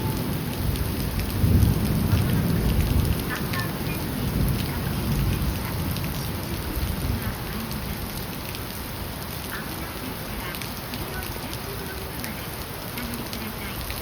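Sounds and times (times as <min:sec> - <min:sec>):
rolling thunder: 0:00.0 - 0:03.3
heavy rain falling: 0:00.0 - 0:14.0.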